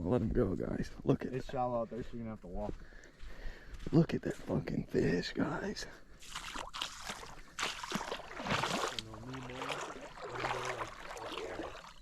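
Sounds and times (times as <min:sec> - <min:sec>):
shallow water sloshing and splashing: 0:06.2 - 0:12.0.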